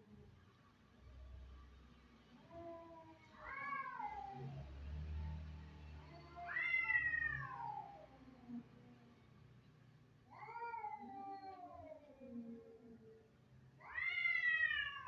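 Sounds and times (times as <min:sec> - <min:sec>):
cat yowling: 0:03.4 - 0:04.6, 0:06.3 - 0:08.0, 0:10.4 - 0:12.0, 0:13.8 - 0:15.0.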